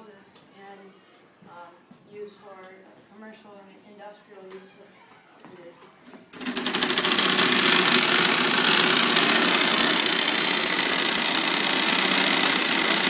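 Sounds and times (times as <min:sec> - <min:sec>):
model gear train clattering: 0:06.4 - 0:13.0.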